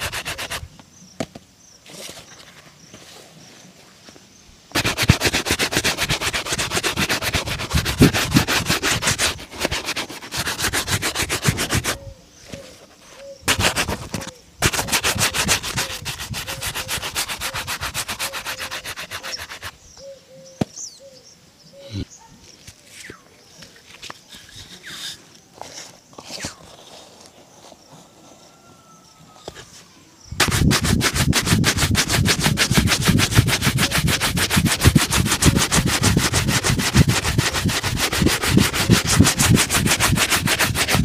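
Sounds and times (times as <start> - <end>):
rubbing on leather shoe: 0.0 - 0.7, 4.7 - 19.8, 23.9 - 28.0, 30.4 - 41.0.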